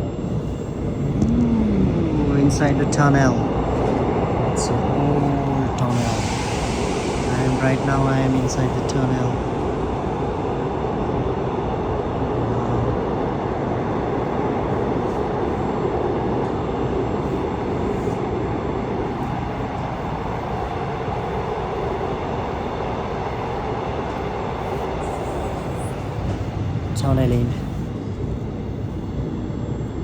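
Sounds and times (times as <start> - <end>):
train wheels rumbling on rails: 0.0 - 12.9.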